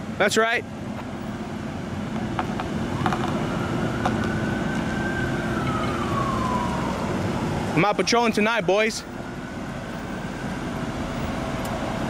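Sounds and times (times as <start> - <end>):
cars idling hum: 0.0 - 12.0
siren wail: 2.5 - 12.0.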